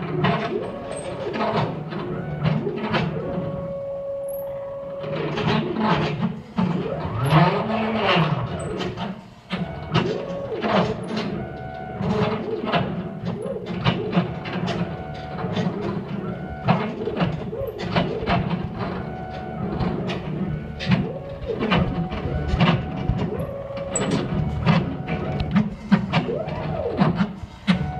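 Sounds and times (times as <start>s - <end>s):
stepper motors whining: 0.0s - 27.9s.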